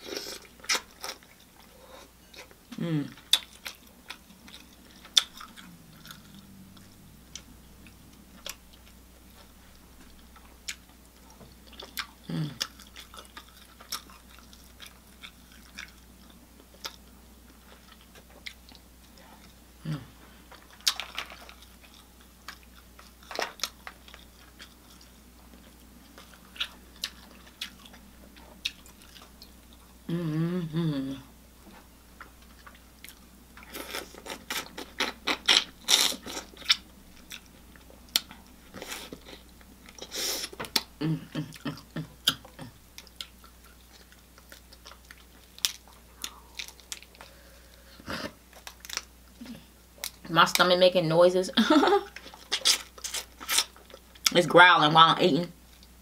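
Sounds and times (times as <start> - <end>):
wet chewing: 3.2 - 17.0, 20.5 - 30.0.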